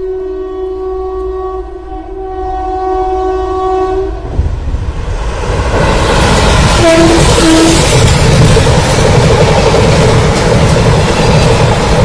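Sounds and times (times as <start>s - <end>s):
locomotive air horn blast: 0.0s - 4.4s, 6.8s - 7.9s
train rumble and clatter: 0.0s - 12.0s.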